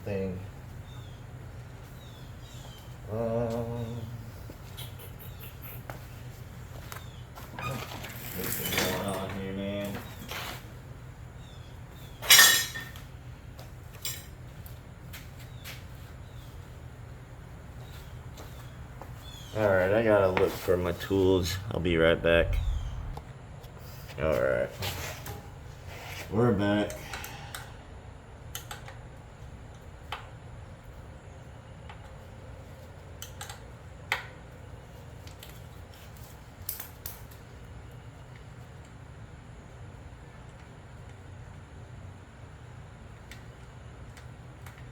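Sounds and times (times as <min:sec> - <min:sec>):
low steady hum: 0:09.3 - 0:32.8
metal tools clanking: 0:12.2 - 0:13.0.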